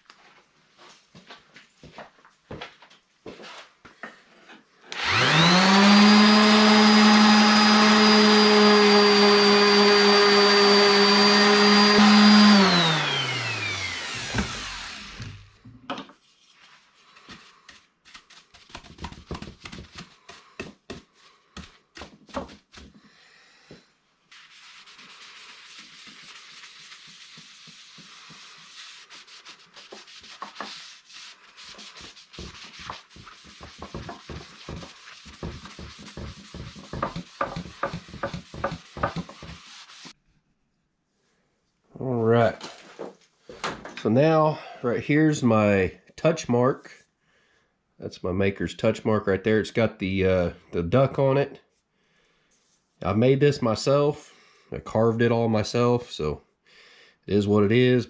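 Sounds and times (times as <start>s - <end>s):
power tool motor whining: 4.9s - 15.6s
faint steady rubbing: 24.3s - 40.2s.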